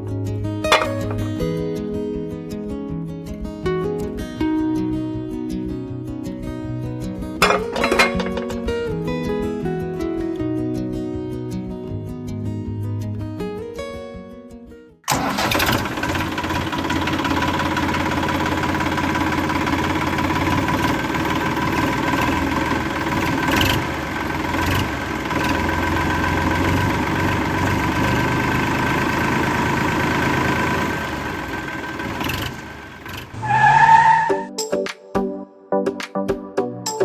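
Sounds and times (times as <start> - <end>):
toy tractor motor whining: 15.1 - 28.2, 28.9 - 34.3.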